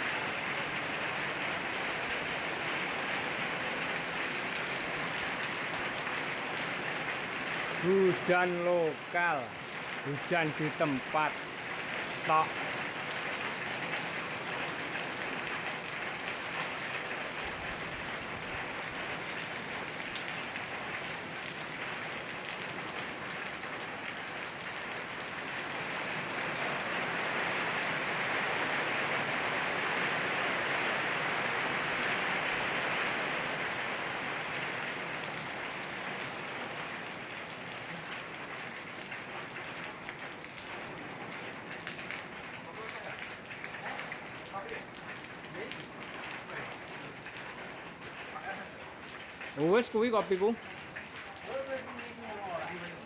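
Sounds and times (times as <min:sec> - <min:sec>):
rain falling: 0:00.0 - 0:53.0.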